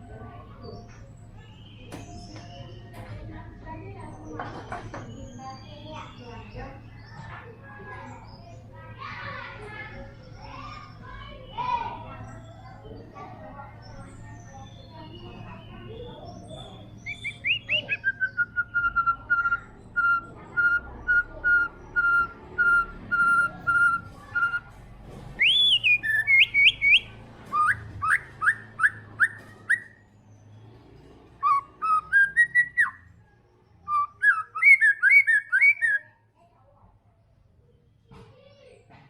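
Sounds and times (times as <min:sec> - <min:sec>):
bird singing whistled notes: 0:14.1 - 0:24.7, 0:25.4 - 0:30.0, 0:31.4 - 0:36.1.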